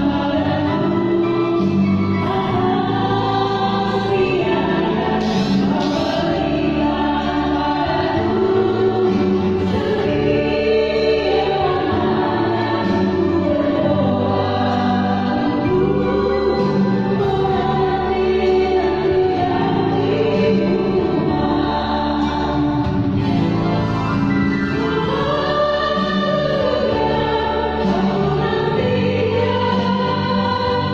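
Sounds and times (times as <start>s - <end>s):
mixed choir singing a hymn: 0.0s - 30.9s.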